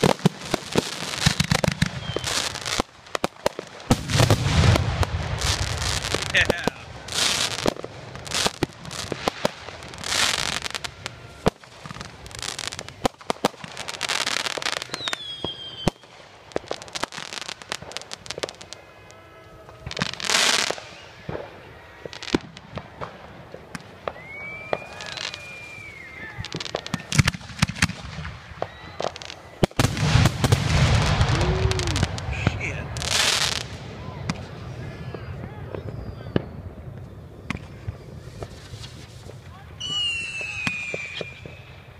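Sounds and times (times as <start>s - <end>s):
fireworks crackling and bangs: 0.0s - 41.9s
whistling firework shell: 1.3s - 2.6s, 14.5s - 16.2s, 19.7s - 21.6s, 23.7s - 32.4s, 34.0s - 41.9s.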